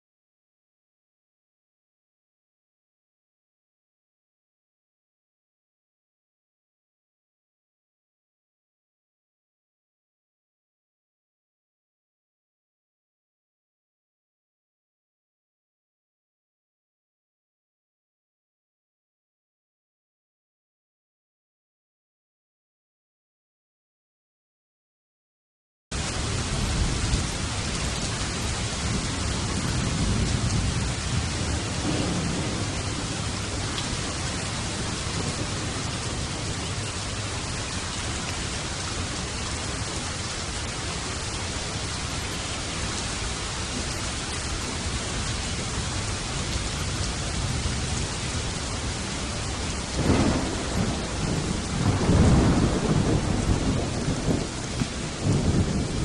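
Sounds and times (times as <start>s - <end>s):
heavy rain: 25.9s - 56.0s
rolling thunder: 26.0s - 39.9s, 44.8s - 56.0s.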